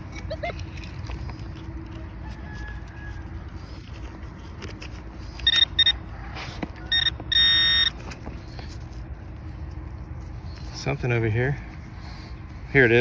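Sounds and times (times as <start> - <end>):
metal detector beeping: 5.4 - 6.1, 6.8 - 8.2.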